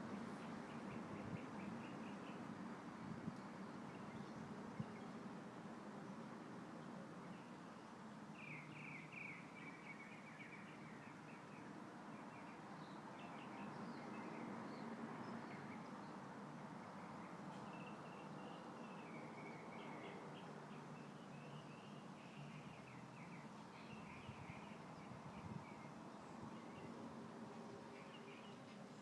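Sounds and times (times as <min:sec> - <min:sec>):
breeze rustling leaves: 0:00.0 - 0:29.0
small birds chirping: 0:07.2 - 0:29.0.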